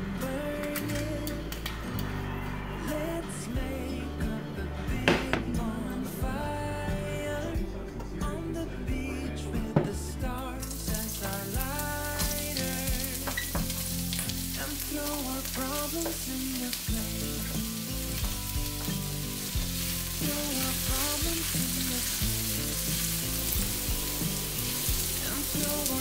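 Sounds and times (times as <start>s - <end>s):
background music: 0.0s - 26.0s
vegetables frying in oil: 10.6s - 26.0s.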